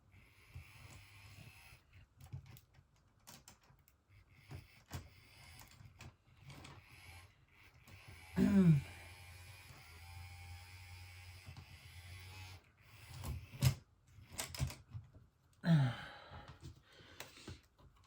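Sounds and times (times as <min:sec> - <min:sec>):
small electric motor humming: 0:00.1 - 0:02.0, 0:04.1 - 0:05.8, 0:06.4 - 0:13.8
person grunting: 0:08.4 - 0:08.9, 0:15.6 - 0:16.3.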